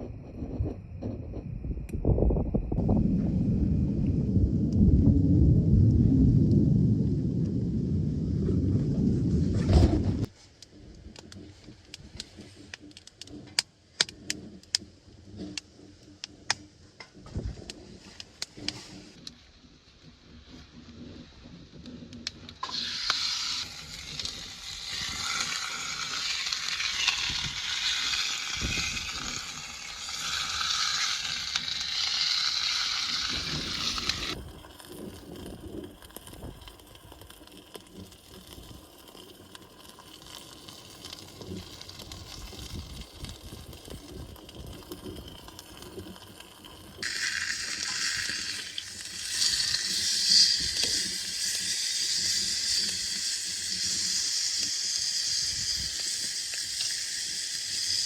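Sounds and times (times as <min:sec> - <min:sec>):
steak sizzling in a pan: 0:22.6 - 0:36.7, 0:37.7 - 0:58.0.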